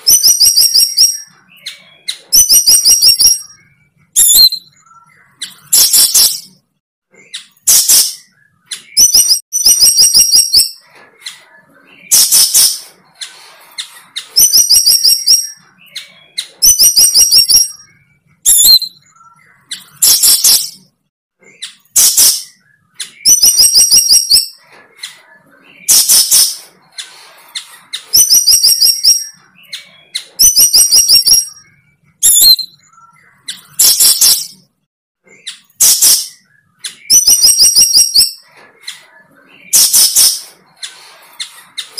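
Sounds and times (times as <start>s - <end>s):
songbird trilling and chirping: 0.0s - 6.5s, 7.2s - 20.8s, 21.5s - 34.7s.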